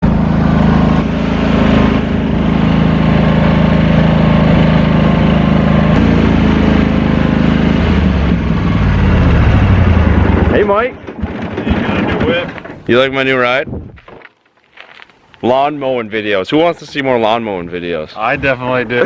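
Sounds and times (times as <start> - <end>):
riding lawn mower engine running: 0.0 - 13.2.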